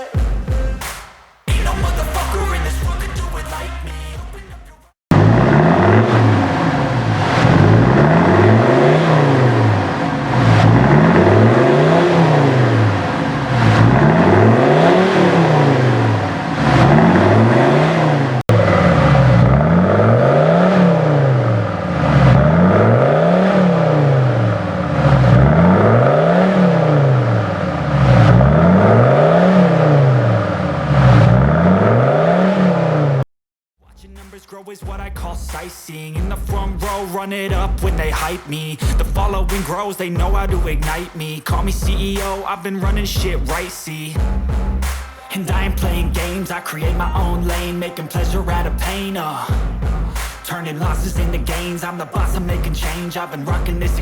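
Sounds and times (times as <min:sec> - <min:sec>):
diesel engine revving: 0:01.5 - 0:04.4, 0:05.1 - 0:33.3, 0:34.0 - 0:54.0.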